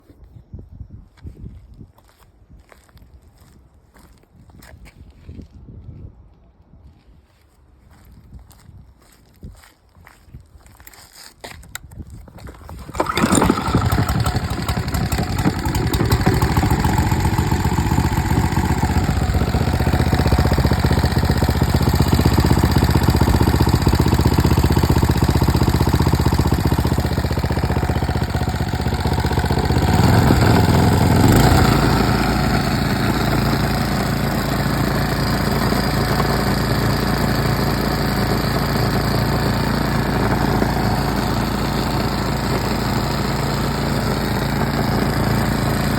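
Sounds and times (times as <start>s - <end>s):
small gasoline engine running: 12.6s - 45.9s.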